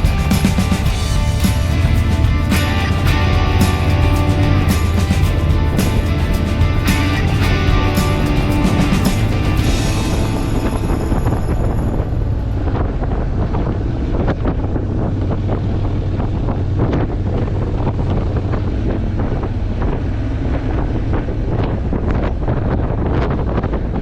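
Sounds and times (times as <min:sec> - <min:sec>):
motorcycle engine and road drone: 0:00.0 - 0:24.0
wind buffeting microphone: 0:00.0 - 0:24.0.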